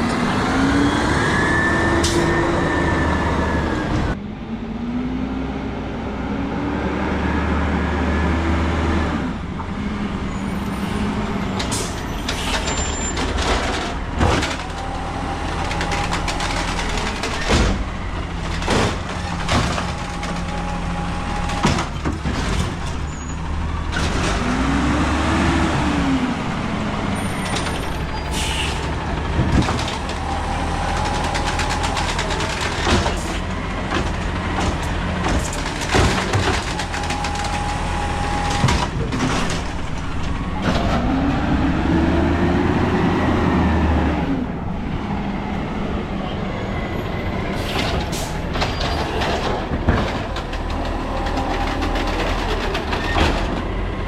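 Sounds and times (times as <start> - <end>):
truck engine revving with whine: 23.1 - 28.2, 40.5 - 47.4.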